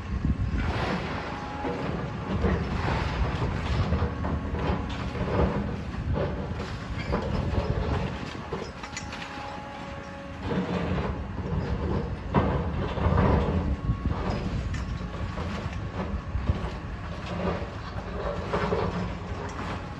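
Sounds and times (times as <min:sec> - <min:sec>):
metal and rubble clanking: 0:00.3 - 0:19.9.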